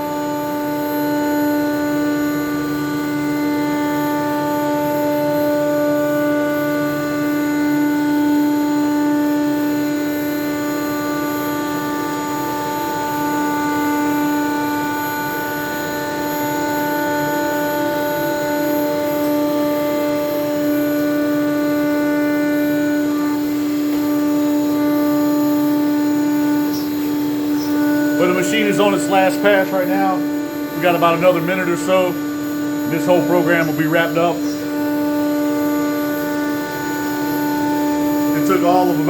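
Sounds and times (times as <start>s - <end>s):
router spindle whine: 0.0s - 39.0s.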